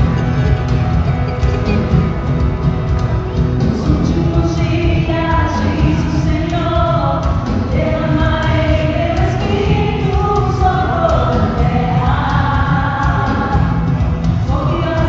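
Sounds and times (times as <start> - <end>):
band with heavy bass: 0.0 - 15.0
choir singing gospel song: 3.6 - 15.0.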